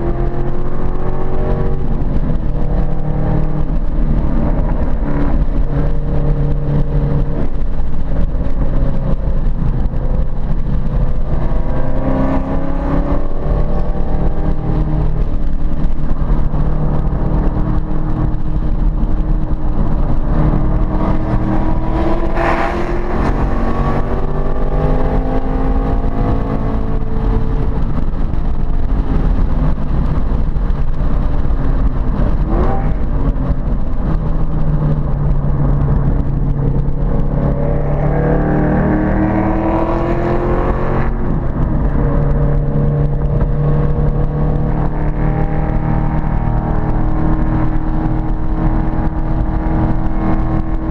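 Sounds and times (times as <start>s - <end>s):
car engine revving: 0.0s - 50.9s.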